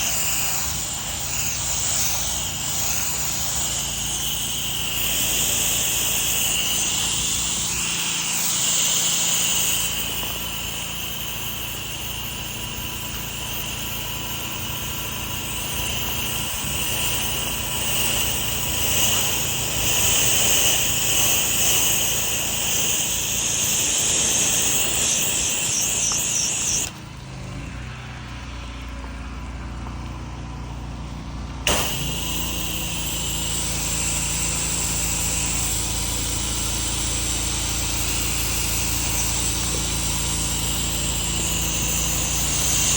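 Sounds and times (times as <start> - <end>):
pressure washer spray hissing: 0.0 - 27.1, 31.6 - 42.9
pressure washer engine hum: 0.0 - 42.9
sharp click: 31.7 - 32.5.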